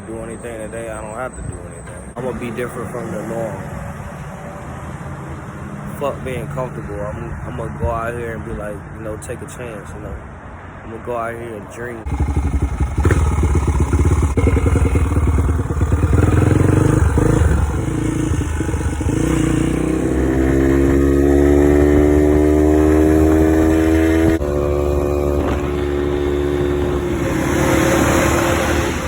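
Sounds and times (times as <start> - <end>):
dirt bike engine: 12.0 - 29.0.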